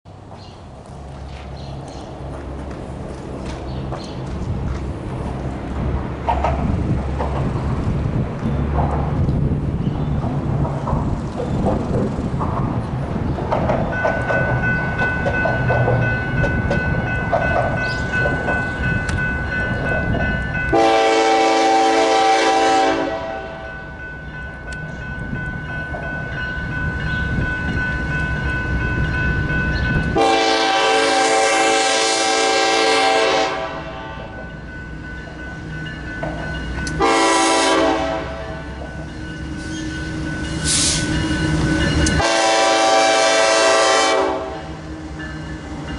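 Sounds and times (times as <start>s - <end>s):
locomotive engine rumble: 0.1s - 45.9s
locomotive air horn blasts: 20.7s - 23.7s, 30.2s - 34.4s, 37.0s - 38.7s, 42.1s - 44.8s.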